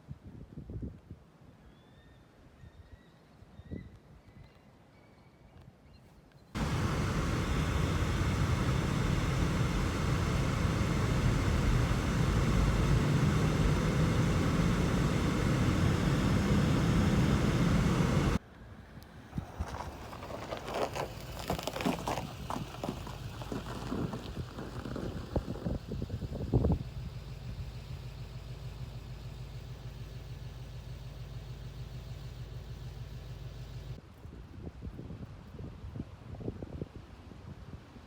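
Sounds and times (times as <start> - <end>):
gusty crackling: 6.6 - 18.4, 19.3 - 30.1
wind buffeting microphone: 6.6 - 18.4, 19.4 - 27.4.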